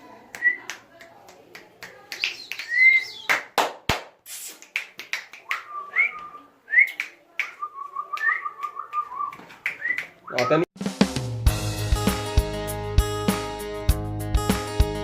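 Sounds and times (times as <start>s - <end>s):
parrot whistling: 5.6s - 6.9s.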